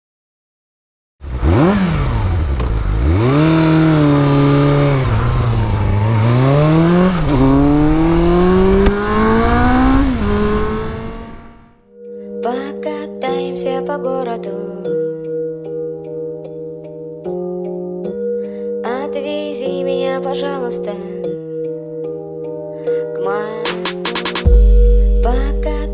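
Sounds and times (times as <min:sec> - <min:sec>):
motorcycle engine revving and accelerating: 0:01.2 - 0:11.8
music: 0:11.8 - 0:25.9.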